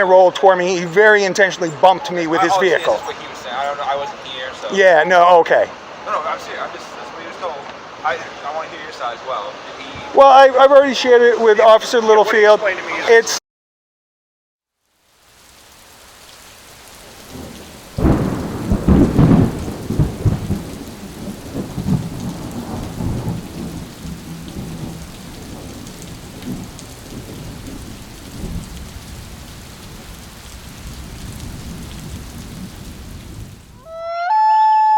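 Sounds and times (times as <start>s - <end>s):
steady rain: 0.0s - 13.4s, 14.7s - 34.0s
thunder crack rumbling: 17.0s - 33.9s.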